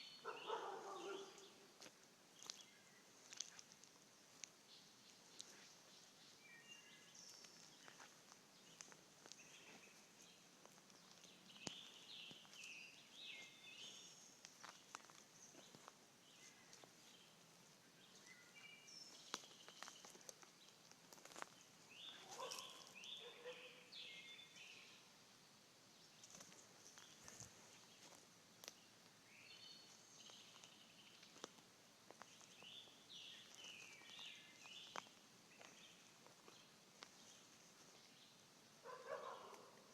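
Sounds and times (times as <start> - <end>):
bird chirping: 0.0 - 1.7, 4.7 - 20.8, 21.4 - 25.1, 32.2 - 39.9.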